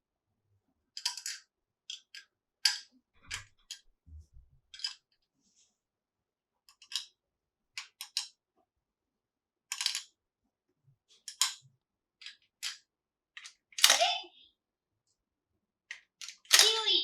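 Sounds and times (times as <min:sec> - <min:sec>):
plastic toy pieces clicking: 0:00.9 - 0:03.8, 0:04.7 - 0:05.1, 0:06.7 - 0:07.2, 0:07.8 - 0:08.4, 0:09.7 - 0:10.2, 0:11.2 - 0:12.8, 0:13.4 - 0:14.1, 0:15.9 - 0:16.9.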